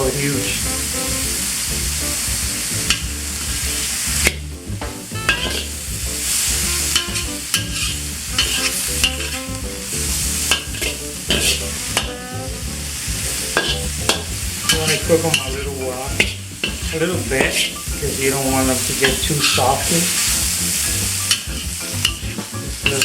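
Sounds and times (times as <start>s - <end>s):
food sizzling in a hot pan: 0.0s - 4.4s, 5.0s - 23.0s
utensil scraping against pan: 5.2s - 12.1s, 13.3s - 23.0s.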